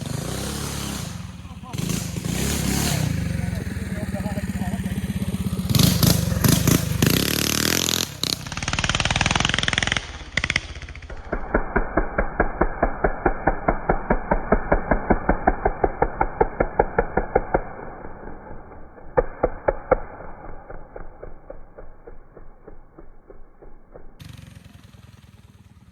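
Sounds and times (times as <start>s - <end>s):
small engine revving and chugging: 0.0s - 25.9s.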